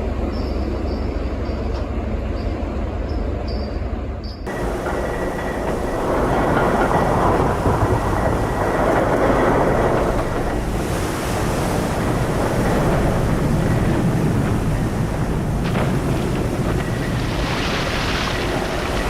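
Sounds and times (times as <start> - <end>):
ship grinding through ice: 4.5 - 19.0
wind on microphone: 4.5 - 19.0.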